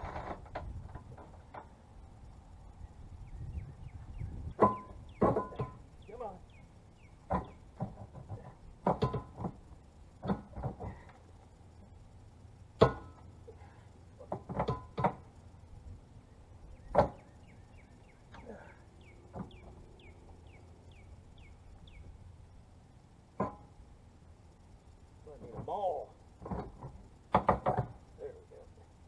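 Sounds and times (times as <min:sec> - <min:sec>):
metal clanks and knocks: 0:04.5 - 0:05.9, 0:07.2 - 0:09.6, 0:12.8 - 0:13.3, 0:14.2 - 0:15.3, 0:23.4 - 0:23.8.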